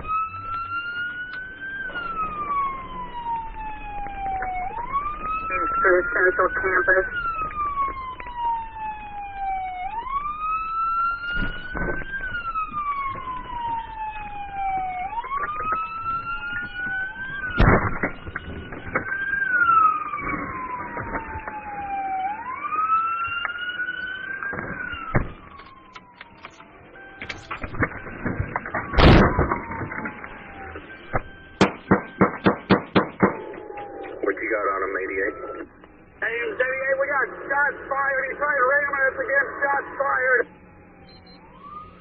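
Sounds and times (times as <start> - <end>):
fainter second siren wail: 0.0 - 42.0
police siren wailing: 0.0 - 42.0.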